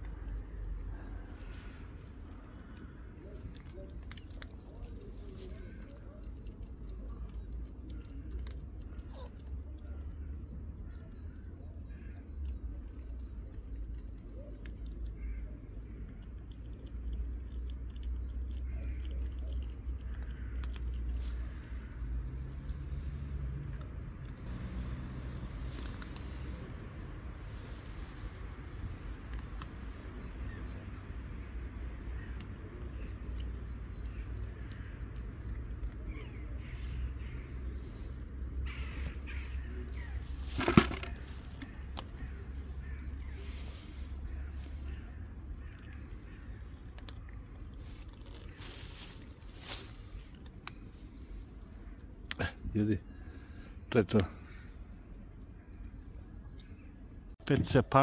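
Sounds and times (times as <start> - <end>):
cat chewing food: 0.0 - 11.6, 12.2 - 24.4
low steady rumble: 0.0 - 52.3
crows cawing: 15.2 - 15.5, 20.2 - 21.9, 36.6 - 37.8, 38.6 - 40.8, 41.6 - 46.8.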